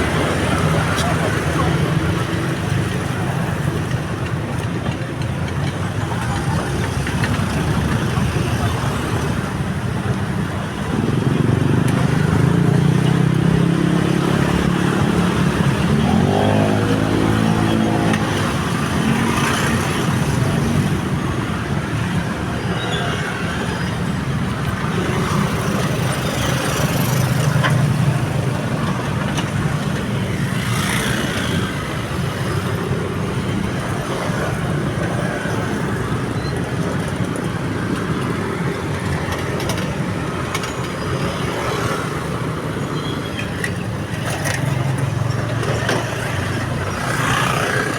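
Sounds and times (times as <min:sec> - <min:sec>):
road traffic: 0:00.0 - 0:47.9.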